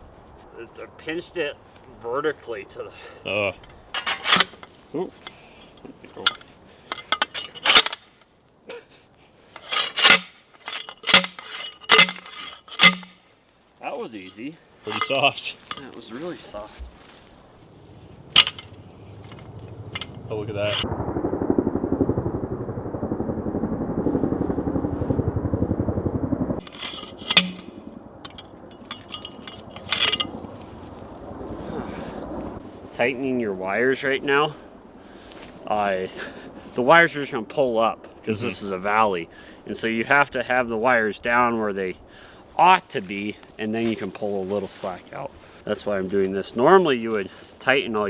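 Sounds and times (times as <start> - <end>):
metal fencing clanking: 3.7 - 5.4, 6.2 - 8.2, 9.6 - 13.2, 14.2 - 16.4, 18.3 - 20.8, 26.6 - 30.4
engine running: 17.6 - 32.6.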